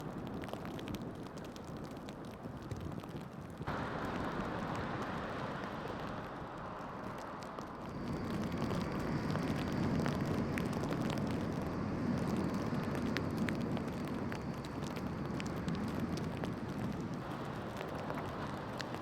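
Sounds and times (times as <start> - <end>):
sharp crackles: 0.0 - 19.0
vehicles passing: 3.7 - 14.3.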